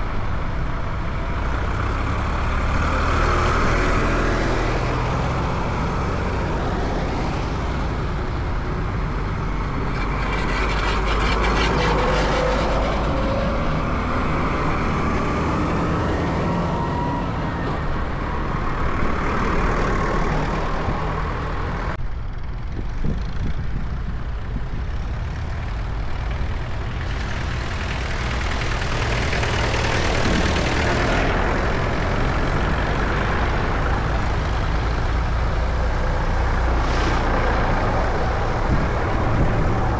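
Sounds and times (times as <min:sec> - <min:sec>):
tractor engines rumbling: 0:00.0 - 0:39.9.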